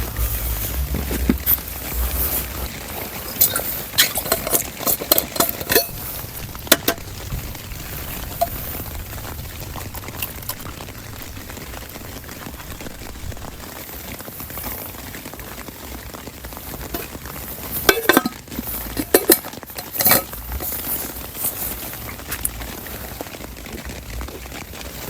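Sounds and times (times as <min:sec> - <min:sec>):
steady hiss: 0:00.0 - 0:25.0
utensil clinking against pot: 0:03.3 - 0:07.1, 0:17.8 - 0:22.4.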